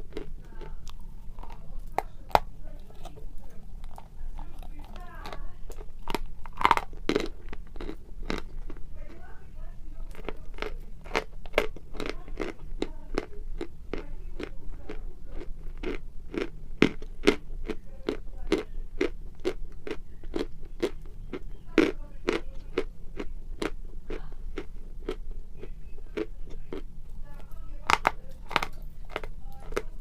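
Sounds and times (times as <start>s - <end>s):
chalk being bitten and chewed: 0.0s - 8.8s.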